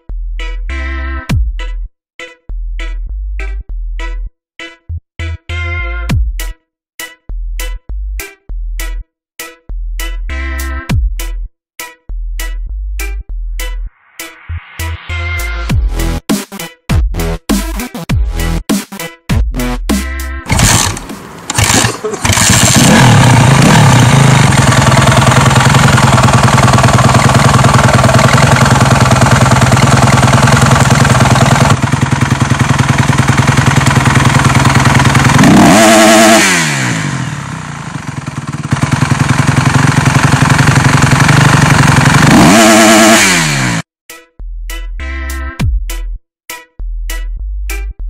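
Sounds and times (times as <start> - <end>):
motocross bike engine revving: 20.5 - 43.9.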